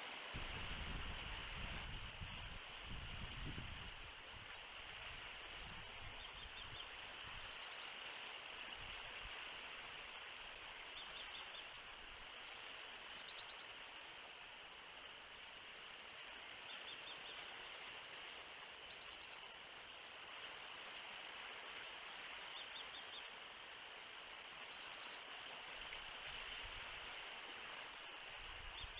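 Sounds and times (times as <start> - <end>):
wind hiss: 0.2 - 7.4
wind rumble on microphone: 0.4 - 7.5.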